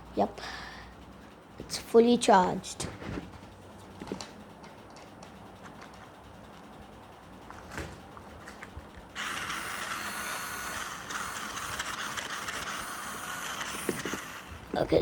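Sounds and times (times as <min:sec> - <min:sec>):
toy car motor whirring: 0:09.2 - 0:15.0.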